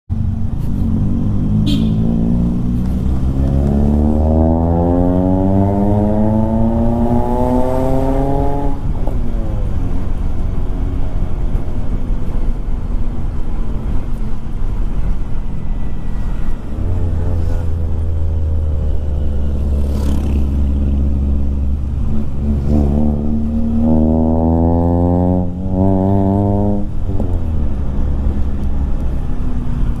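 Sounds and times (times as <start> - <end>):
vehicle engine accelerating: 0.2 - 12.4, 16.2 - 30.0.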